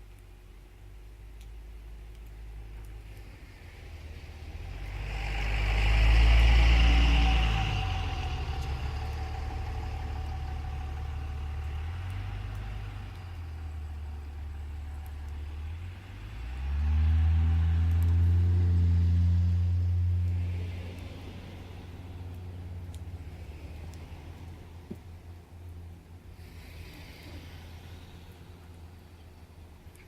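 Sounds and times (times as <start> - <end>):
car engine revving: 4.6 - 24.8.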